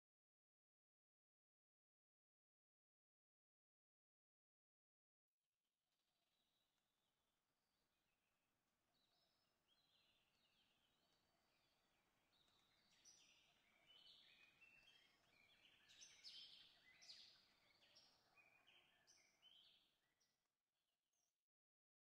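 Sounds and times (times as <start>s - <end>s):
high chirping birdsong: 12.3s - 19.8s.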